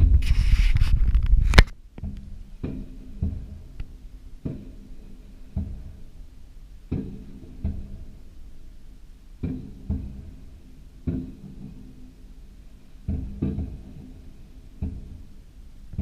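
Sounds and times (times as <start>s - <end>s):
firework rumble with crackling hiss: 0.0s - 6.9s.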